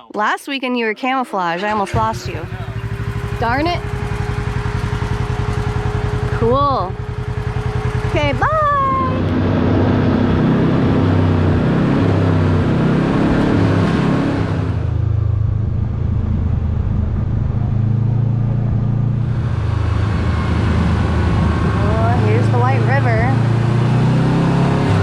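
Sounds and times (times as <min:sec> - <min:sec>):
off-road vehicle engine: 0:01.6 - 0:25.0.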